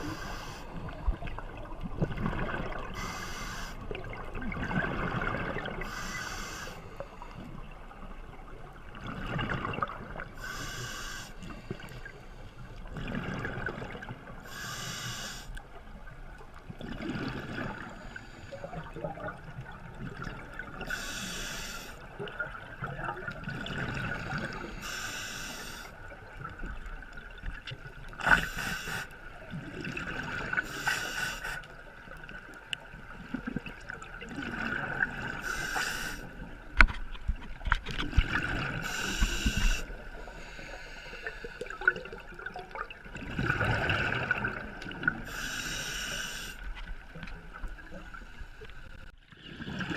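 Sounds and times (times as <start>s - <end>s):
diver inhaling through regulator: 0.0s - 0.8s, 2.9s - 3.8s, 5.8s - 7.4s, 10.4s - 12.6s, 14.4s - 15.6s, 20.9s - 22.0s, 24.2s - 26.0s, 28.2s - 29.2s, 30.5s - 31.7s, 35.3s - 36.4s, 38.7s - 42.1s, 45.2s - 46.7s
bubbling exhale underwater: 41.5s - 45.3s.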